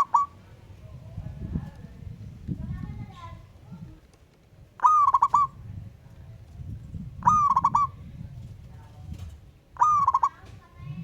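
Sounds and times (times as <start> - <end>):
dove cooing song: 0.0 - 0.4, 4.8 - 5.6, 7.2 - 8.1, 9.8 - 10.5.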